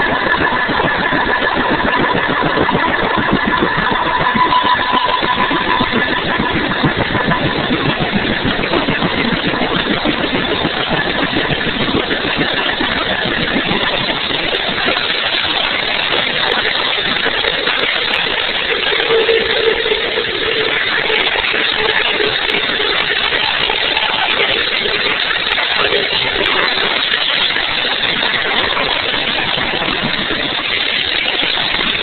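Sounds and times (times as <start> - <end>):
helicopter running: 0.0 - 32.0
high whine: 0.0 - 32.0
lower steady tone: 0.0 - 32.0.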